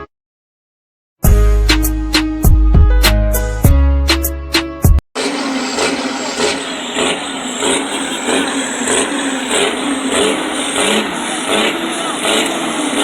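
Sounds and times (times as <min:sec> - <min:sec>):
truck engine running: 0:05.2 - 0:13.0.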